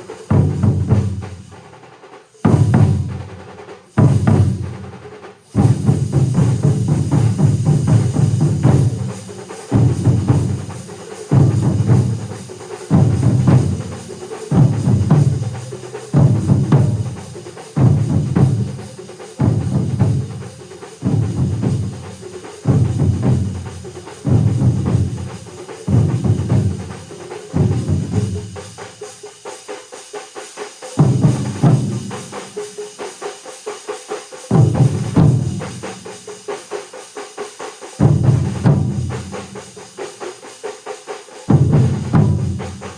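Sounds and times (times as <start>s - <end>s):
ensemble of drummers playing: 0.0s - 42.9s.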